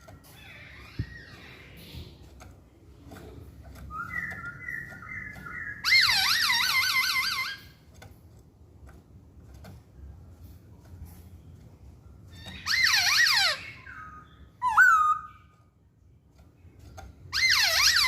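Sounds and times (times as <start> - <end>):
bird whistling song: 3.8 - 7.6, 12.4 - 15.6.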